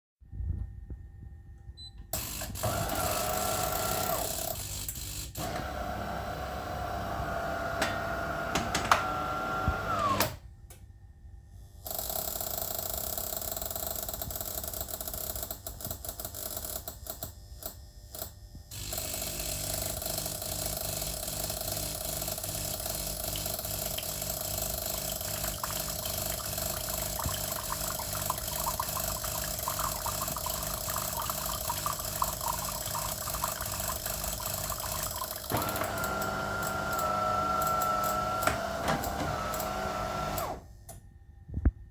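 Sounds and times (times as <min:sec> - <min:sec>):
appliance motor humming: 0:02.2 - 0:10.4, 0:22.7 - 0:41.0.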